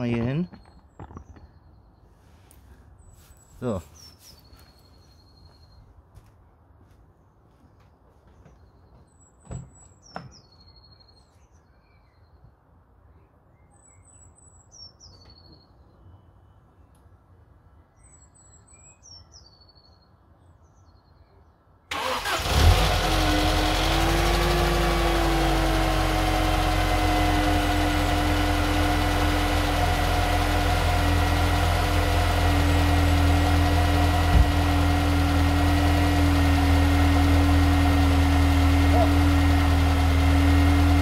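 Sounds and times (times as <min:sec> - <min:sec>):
faint bird chirps: 0:00.0 - 0:06.0, 0:08.4 - 0:17.2
car engine starting and idling: 0:21.9 - 0:41.0
brief thump: 0:34.3 - 0:34.6.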